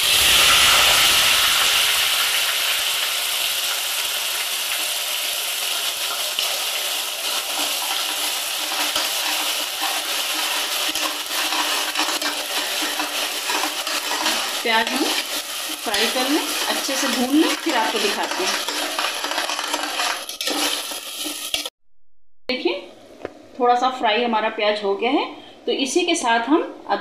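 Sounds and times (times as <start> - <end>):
oil popping and crackling: 0.0 - 21.7
onion paste sizzling in oil: 0.0 - 21.7.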